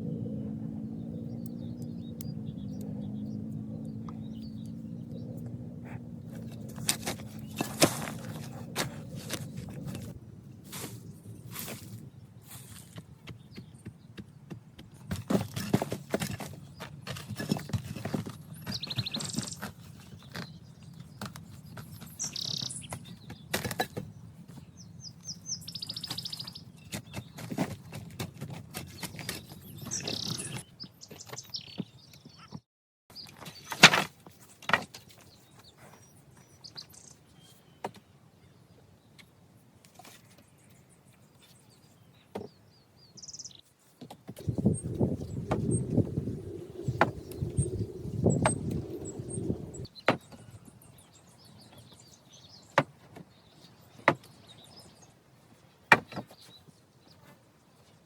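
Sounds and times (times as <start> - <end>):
small birds chirping: 0.0 - 58.0
knocks and thuds of hand work: 55.9 - 56.4.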